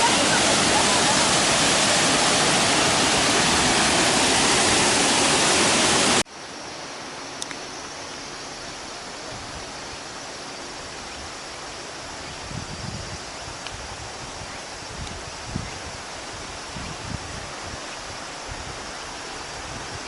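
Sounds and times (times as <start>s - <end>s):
waterfall roaring: 0.0s - 6.2s
outdoor hiss: 0.0s - 20.0s
click: 7.4s - 7.6s.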